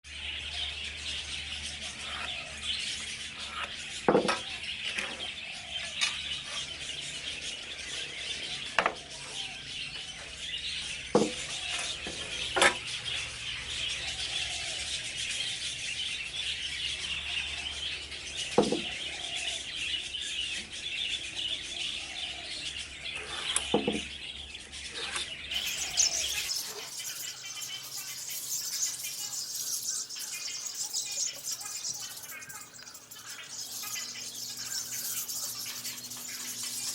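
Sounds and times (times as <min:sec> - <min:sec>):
budgerigars chattering: 0:25.0 - 0:36.9
sharp bird calls: 0:25.3 - 0:36.9.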